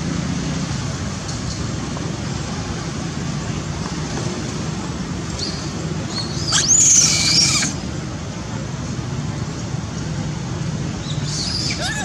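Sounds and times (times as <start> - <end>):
baby monkey crying: 6.4 - 7.8.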